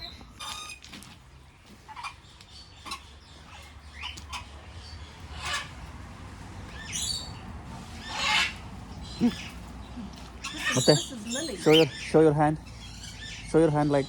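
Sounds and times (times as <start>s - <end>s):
parrots squawking: 1.9s - 5.8s, 6.7s - 14.0s.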